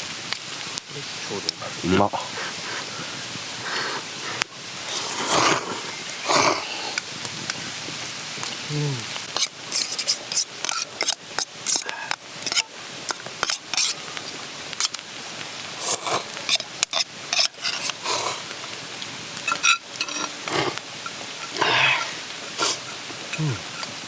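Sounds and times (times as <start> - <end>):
mountain stream rushing: 0.0 - 24.0
utensils scraping metal cookware: 9.4 - 12.6, 16.5 - 18.0, 19.5 - 20.8.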